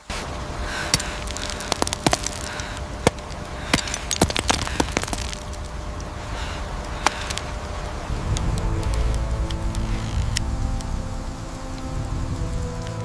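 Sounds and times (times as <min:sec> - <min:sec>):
steady rushing noise: 0:00.0 - 0:13.0
cracking and snapping: 0:00.7 - 0:10.9.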